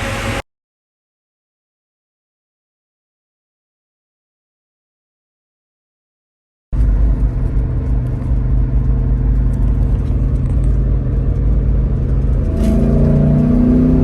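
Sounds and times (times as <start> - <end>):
car engine accelerating: 0.0 - 0.4, 6.8 - 14.0.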